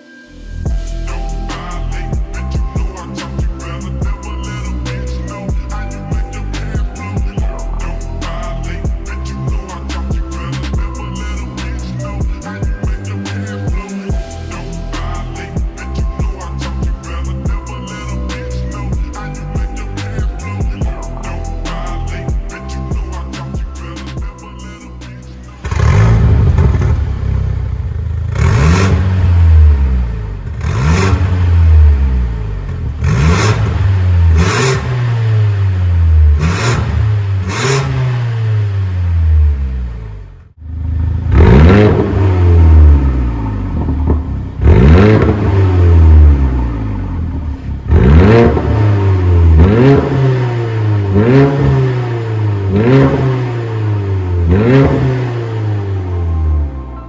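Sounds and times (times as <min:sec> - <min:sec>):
exhaust cracks: 0:25.0 - 0:56.5
car engine revving: 0:25.4 - 0:57.0.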